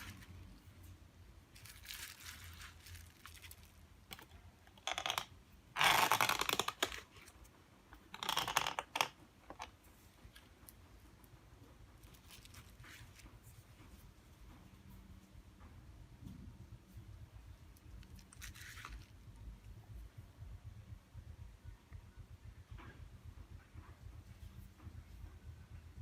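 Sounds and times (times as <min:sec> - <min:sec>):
thin plastic crinkling and tearing: 0:01.5 - 0:07.3, 0:18.0 - 0:19.2.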